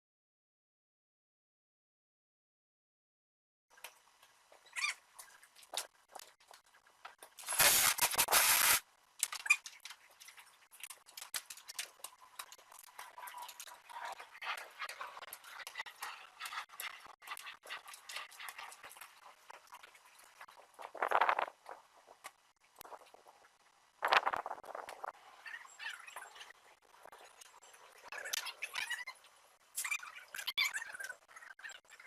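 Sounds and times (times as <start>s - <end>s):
loud burst of noise: 7.4s - 8.8s.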